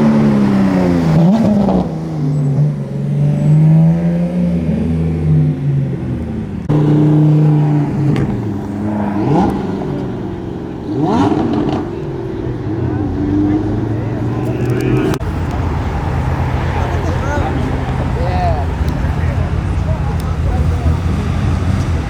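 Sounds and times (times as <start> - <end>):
car engines running: 0.0 - 22.0
engine revving: 0.0 - 22.0.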